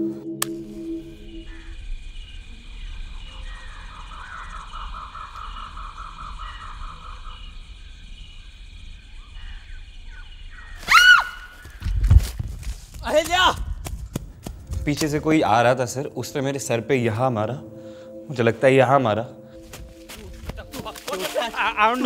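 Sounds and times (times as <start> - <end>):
steady high whine: 0.0 - 10.6
loud high bird cry: 9.4 - 11.8.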